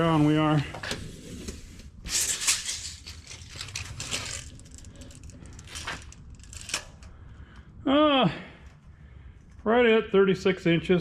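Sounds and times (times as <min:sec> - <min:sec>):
tape measure blade rattling: 0:02.1 - 0:07.0.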